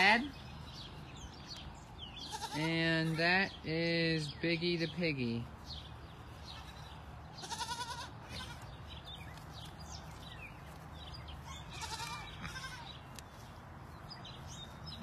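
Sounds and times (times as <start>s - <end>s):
goat kid bleating: 2.2s - 2.9s, 6.5s - 8.8s, 11.4s - 13.1s.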